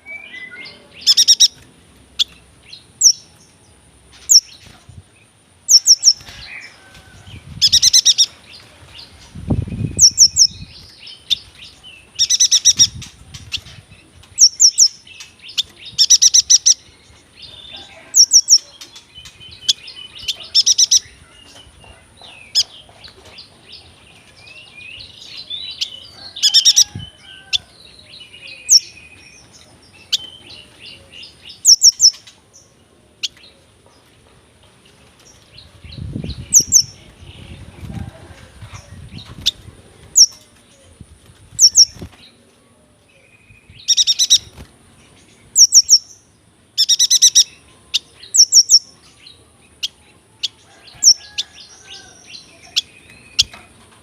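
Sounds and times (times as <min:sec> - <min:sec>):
bird chirping high-pitched: 0:00.0 - 0:01.6, 0:05.7 - 0:06.3, 0:07.6 - 0:08.4, 0:09.7 - 0:11.5, 0:12.1 - 0:13.6, 0:14.4 - 0:16.9, 0:18.2 - 0:21.2, 0:31.6 - 0:32.3, 0:36.0 - 0:37.5, 0:41.6 - 0:42.1, 0:43.6 - 0:44.5, 0:45.5 - 0:46.1, 0:46.8 - 0:49.1
soft bird twittering: 0:00.0 - 0:01.6.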